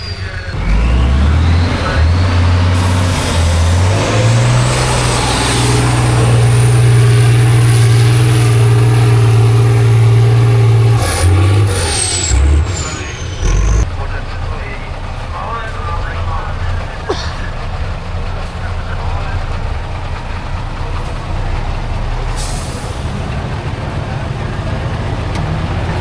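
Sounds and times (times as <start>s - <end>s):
diesel truck engine revving: 0.3s - 26.0s
high whine: 1.5s - 14.3s.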